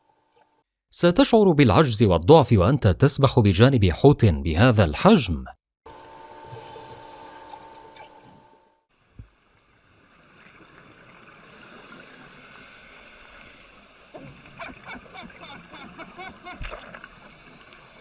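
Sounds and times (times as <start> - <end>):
multi-tone hum: 1.0 - 8.7
underwater hiss: 11.3 - 14.1, 17.0 - 18.0.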